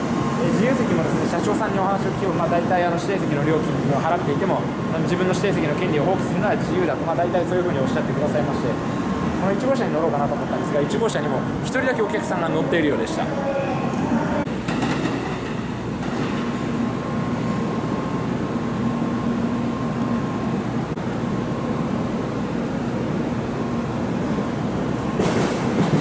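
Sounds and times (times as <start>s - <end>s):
faint high whine: 0.0s - 14.5s
train equipment humming: 0.0s - 26.0s.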